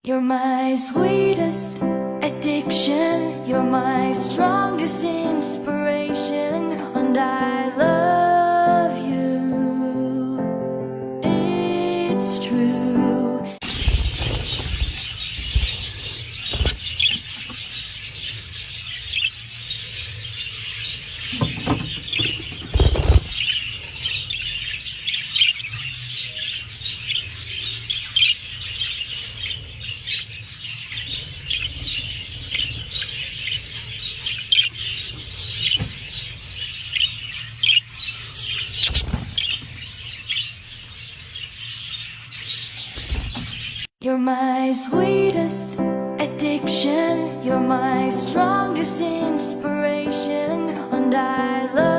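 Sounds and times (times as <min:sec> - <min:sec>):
parrot chicks squealing: 0:13.6 - 0:43.9.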